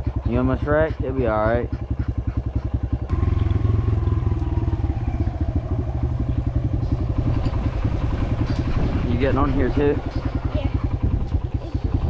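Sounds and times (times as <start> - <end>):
dirt bike engine revving: 2.1 - 11.3.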